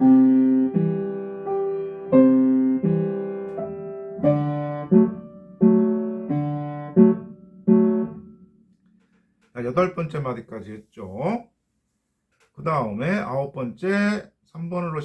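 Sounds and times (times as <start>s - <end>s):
piano playing slow melody: 0.0s - 8.7s.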